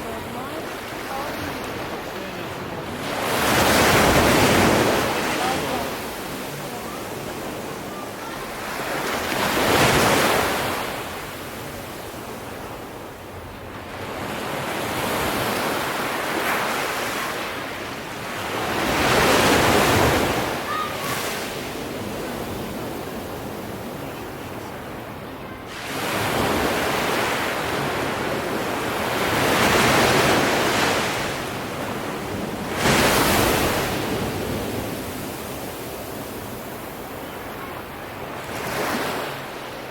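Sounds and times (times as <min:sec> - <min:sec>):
sea waves breaking: 0:00.0 - 0:39.9
wave crash: 0:32.6 - 0:35.0.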